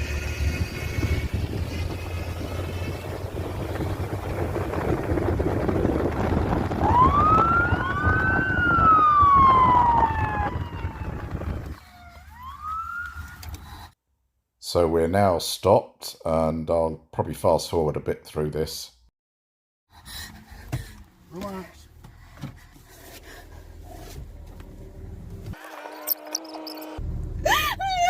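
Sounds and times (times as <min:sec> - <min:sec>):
road and engine noise: 0:00.0 - 0:14.0, 0:19.9 - 0:28.0
police siren wailing: 0:06.4 - 0:13.6.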